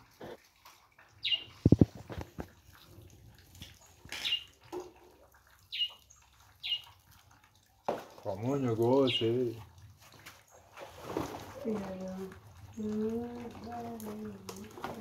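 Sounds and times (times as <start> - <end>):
high bird chirps dropping in pitch: 5.7 - 6.0.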